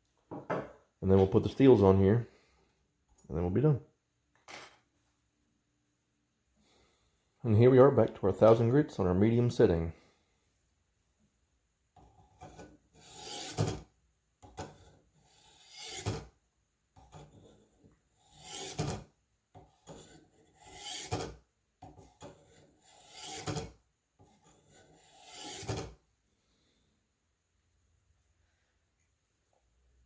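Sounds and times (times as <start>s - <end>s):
knife blade scraping on sharpener: 12.5s - 13.8s, 15.3s - 16.3s, 18.3s - 19.0s, 19.9s - 21.4s, 22.2s - 23.7s, 24.5s - 25.9s.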